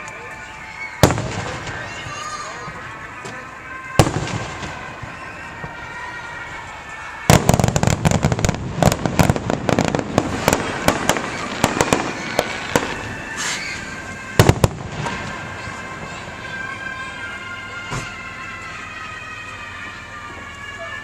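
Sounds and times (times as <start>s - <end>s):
fireworks popping and banging: 0.9s - 16.2s.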